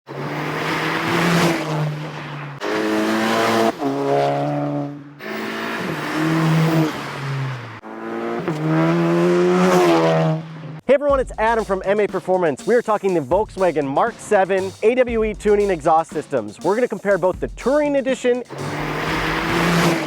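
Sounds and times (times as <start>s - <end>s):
car engine revving and accelerating: 0.1s - 10.8s, 18.5s - 20.0s.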